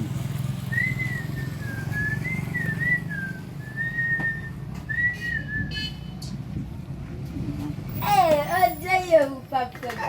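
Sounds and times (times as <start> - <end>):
person whistling a tune: 0.7 - 6.0.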